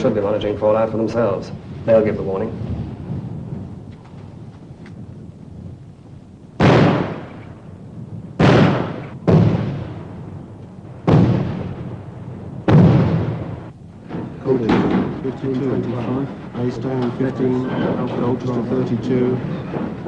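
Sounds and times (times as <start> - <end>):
loud bangs: 6.6 - 7.7, 8.3 - 20.0.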